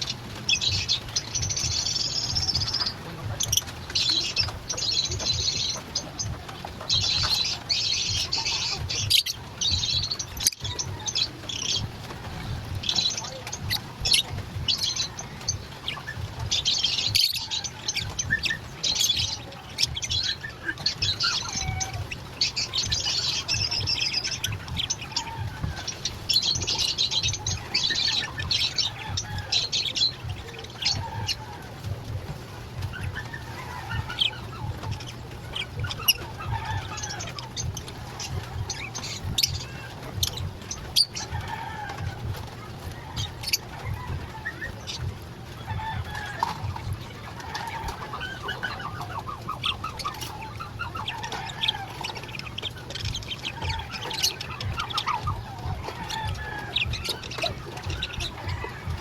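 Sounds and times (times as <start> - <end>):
lovebirds chattering and chirping: 0.0 - 59.0.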